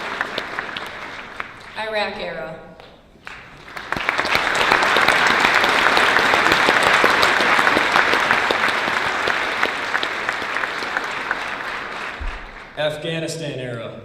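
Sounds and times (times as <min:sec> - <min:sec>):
audience applauding: 0:00.0 - 0:01.8, 0:03.2 - 0:13.5.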